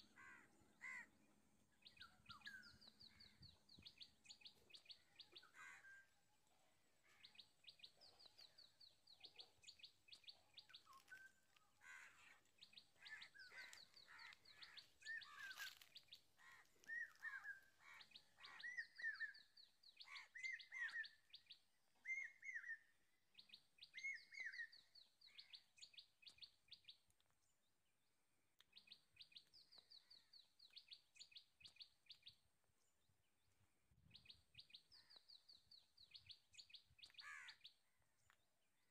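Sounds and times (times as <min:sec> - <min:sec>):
down-slurred bird calls: 0:07.0 - 0:21.3.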